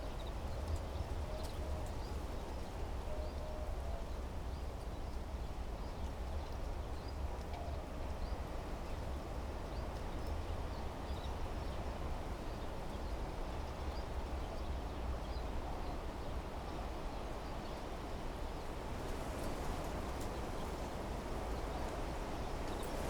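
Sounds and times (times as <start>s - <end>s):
wind rustling trees: 18.7s - 23.0s.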